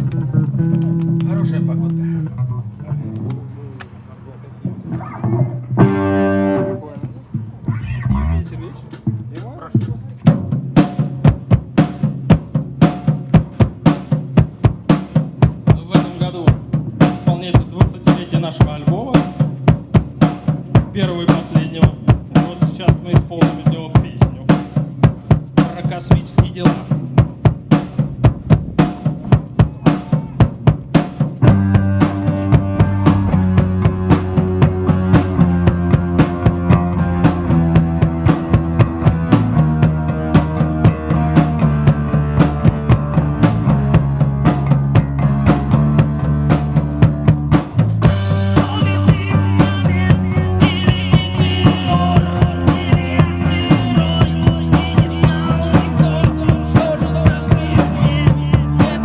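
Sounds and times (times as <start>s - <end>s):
live rock band playing: 5.8s - 7.0s, 14.7s - 59.0s
drum kit beat: 7.7s - 59.0s.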